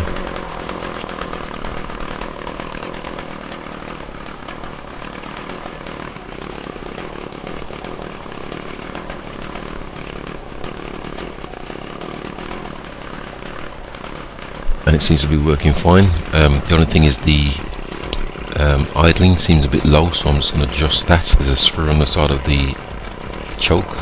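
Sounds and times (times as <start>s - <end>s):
strimmer engine idling: 15.6s - 24.0s.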